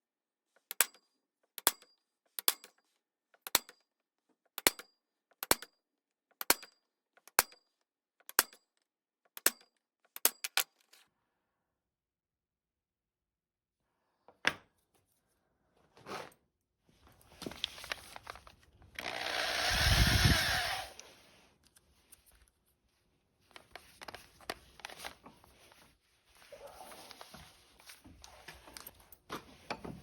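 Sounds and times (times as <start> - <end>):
handheld power tool running: 18.9 - 21.0.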